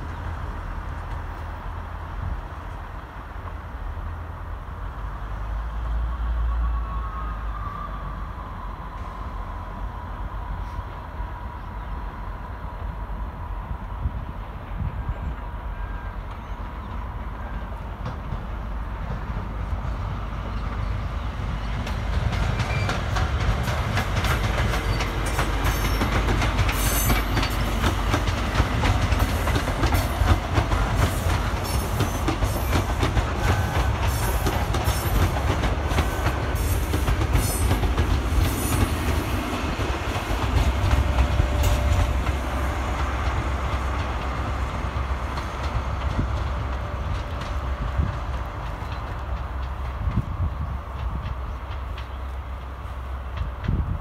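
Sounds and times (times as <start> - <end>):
diesel train rumble: 0.0 - 54.0
wheels clicking over rail joints: 21.6 - 54.0.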